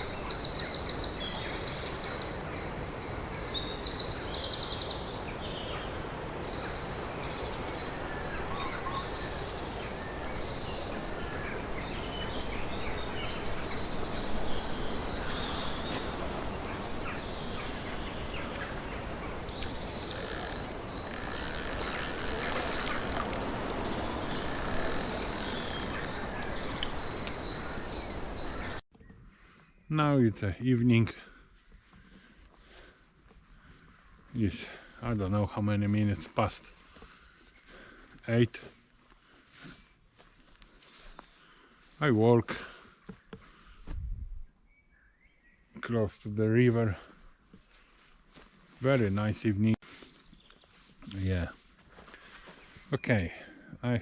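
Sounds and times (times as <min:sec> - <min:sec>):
birds chirping and trilling: 0:00.0 - 0:28.8.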